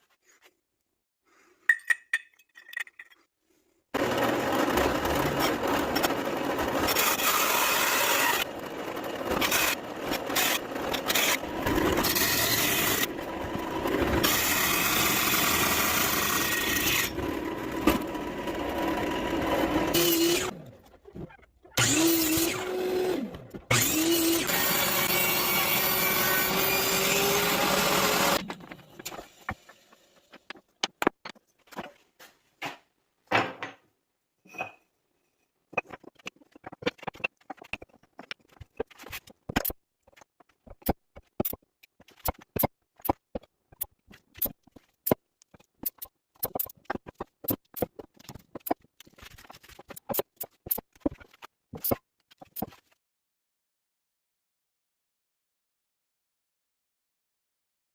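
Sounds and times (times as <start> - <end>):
woodworking power tool running: 4.0 - 20.5, 21.8 - 30.2.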